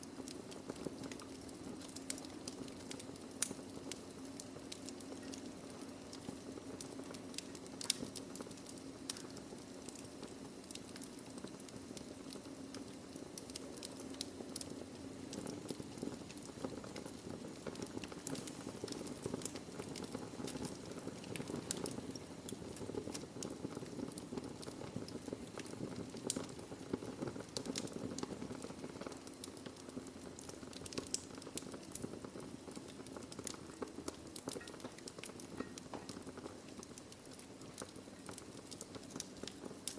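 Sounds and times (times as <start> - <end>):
low rush of fire: 0.0 - 39.9
wood logs crackling and popping: 0.0 - 39.9.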